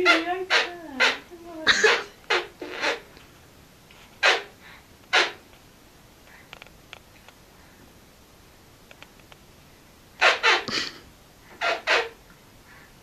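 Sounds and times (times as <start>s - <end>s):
man making puffing lip noises: 10.2s - 12.4s.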